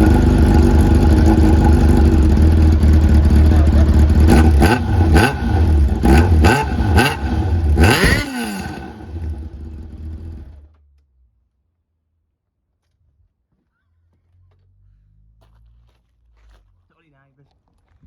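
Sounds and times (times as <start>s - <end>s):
motorcycle engine revving: 0.0s - 10.7s.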